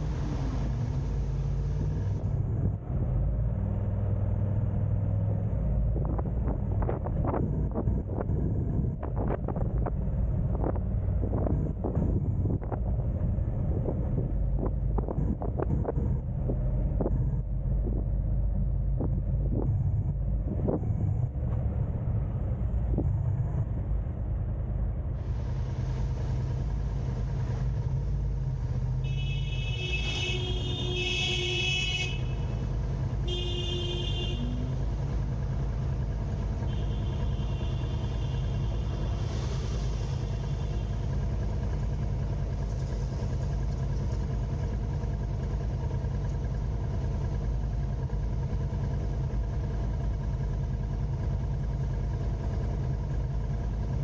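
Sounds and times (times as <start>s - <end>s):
car road and engine rumble: 0.0s - 54.0s
vehicle horn honking: 29.0s - 32.6s, 33.2s - 34.8s, 36.6s - 39.1s.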